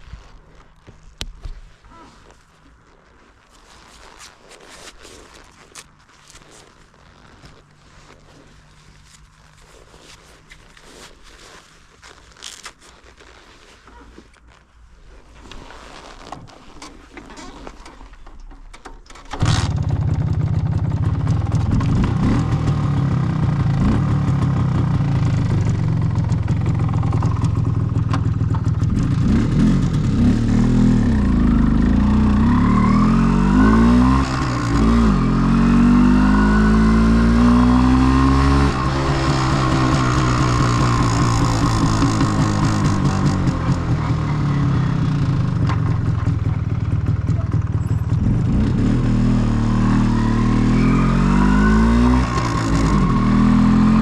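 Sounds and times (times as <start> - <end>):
motorcycle engine revving: 19.3 - 54.0.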